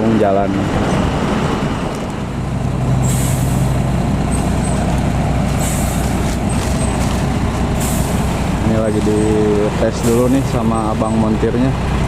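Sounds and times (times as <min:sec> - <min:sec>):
diesel truck engine running: 0:00.0 - 0:12.0
air brake hisses: 0:03.0 - 0:03.7, 0:05.6 - 0:06.1, 0:07.8 - 0:08.4.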